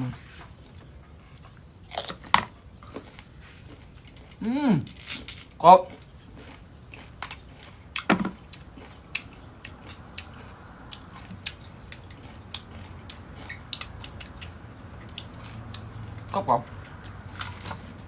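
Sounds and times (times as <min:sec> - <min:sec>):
mango being bitten and chewed: 0:01.3 - 0:18.0.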